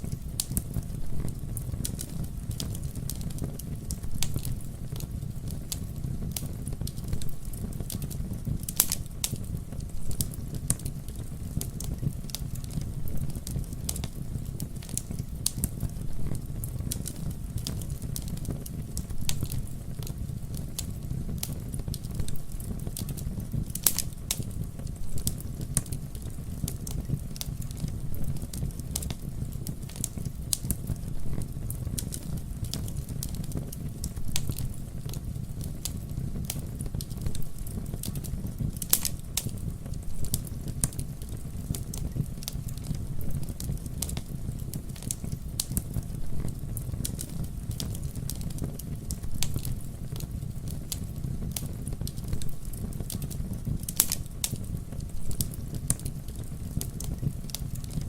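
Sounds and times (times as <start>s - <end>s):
campfire crackling and popping: 0.0s - 58.0s
fire rumbling: 0.0s - 58.0s.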